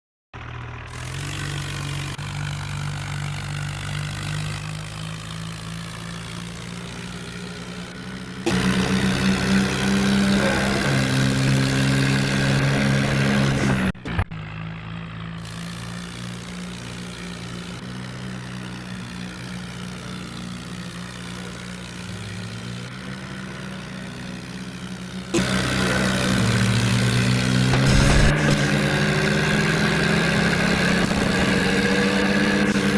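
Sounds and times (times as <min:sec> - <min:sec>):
tractor diesel engine running: 0:00.4 - 0:32.9.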